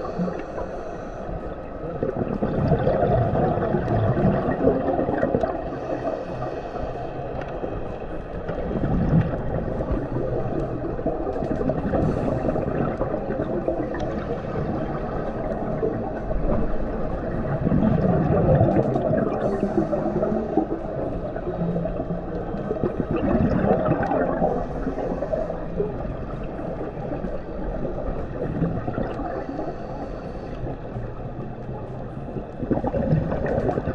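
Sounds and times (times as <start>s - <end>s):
muffled underwater bubbling: 0.0s - 33.9s.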